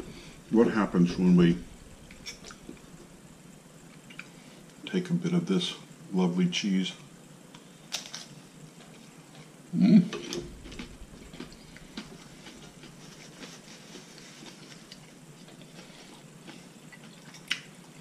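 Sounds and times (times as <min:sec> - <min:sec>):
cracker crunching: 0:07.5 - 0:09.5, 0:10.2 - 0:17.9
mouth sound: 0:09.7 - 0:11.7.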